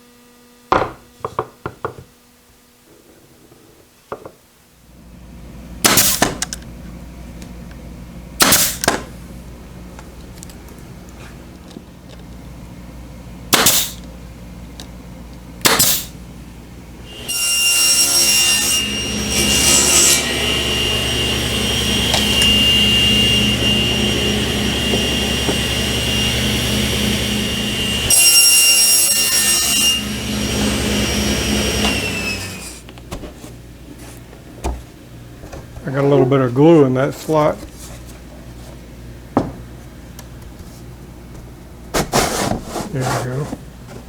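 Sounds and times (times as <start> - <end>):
power tool cutting wood: 17.1 - 32.9.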